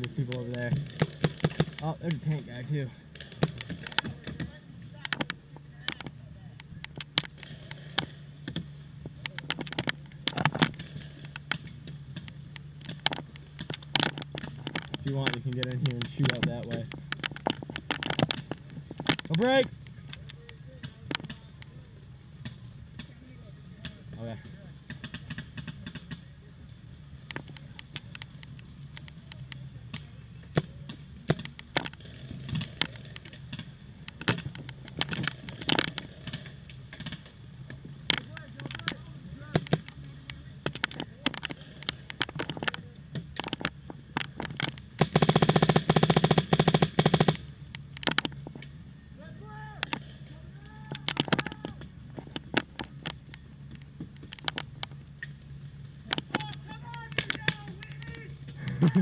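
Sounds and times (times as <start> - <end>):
paintball markers firing: 0.0 - 2.4, 27.3 - 37.3, 38.1 - 48.4
steady low hum: 0.0 - 59.0.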